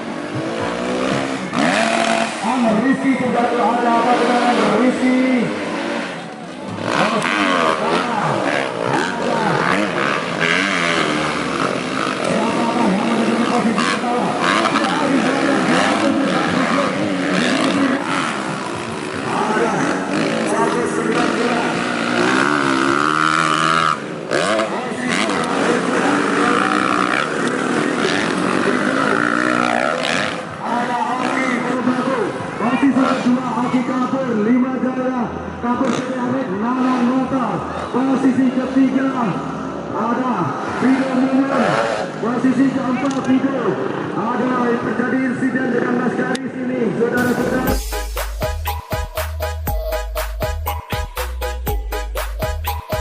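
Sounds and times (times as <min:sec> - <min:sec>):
dirt bike engines revving: 0:00.0 - 0:53.0.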